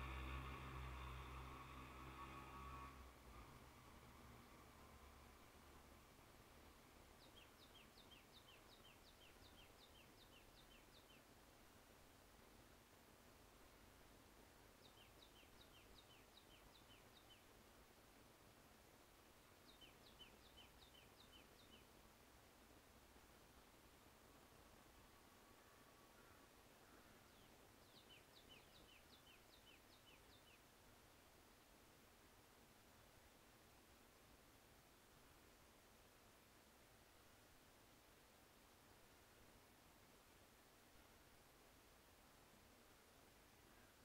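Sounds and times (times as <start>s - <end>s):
background hiss: 0.0s - 44.0s
bird calling faintly: 24.9s - 30.6s, 43.6s - 44.0s.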